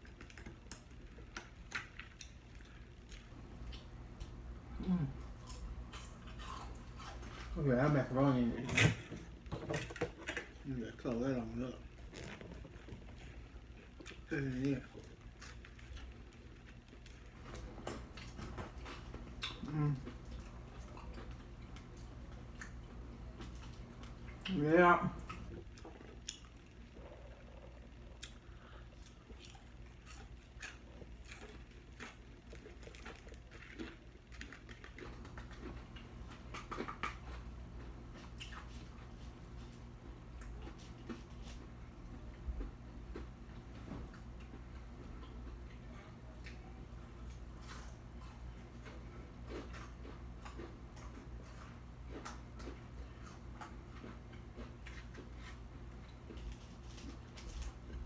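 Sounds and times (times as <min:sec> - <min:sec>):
wet chewing and lip-smacking: 0:00.0 - 0:07.6, 0:12.1 - 0:24.6, 0:29.0 - 0:58.0
steady low hum: 0:00.0 - 0:58.0.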